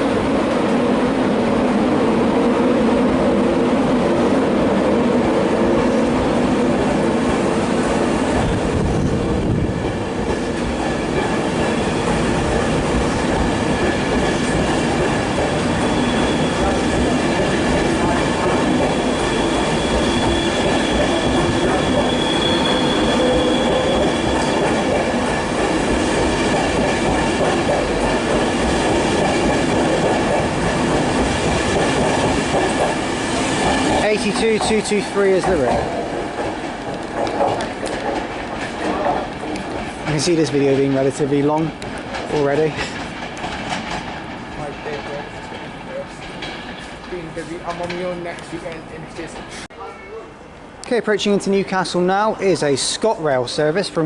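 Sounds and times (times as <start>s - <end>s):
train rumble: 0.0s - 49.7s
train wheels clacking on rail joints: 8.3s - 49.7s
wheel squeal: 15.8s - 16.8s, 18.9s - 24.5s.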